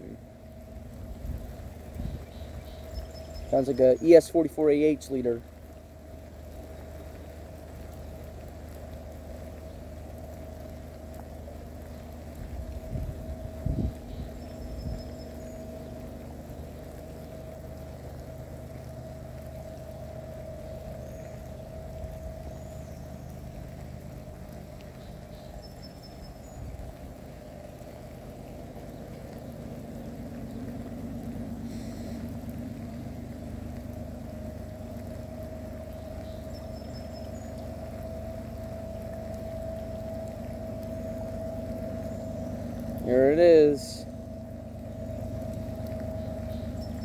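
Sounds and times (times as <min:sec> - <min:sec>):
diesel locomotive engine drone: 0:00.0 - 0:47.0.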